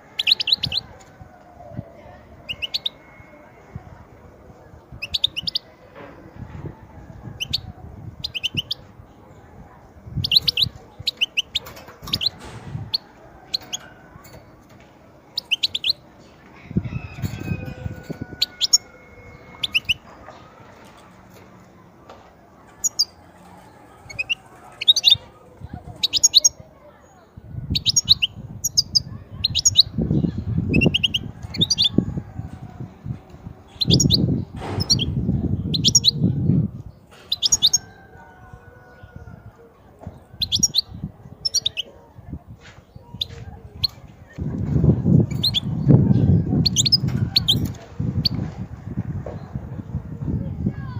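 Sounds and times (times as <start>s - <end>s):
finch twittering calls: 33.8s - 36.2s, 40.4s - 40.9s.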